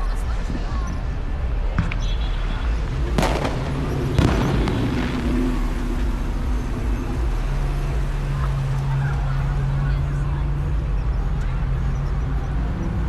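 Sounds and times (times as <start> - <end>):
low rumble of traffic: 0.0 - 13.0
sharp bangs: 1.6 - 8.7.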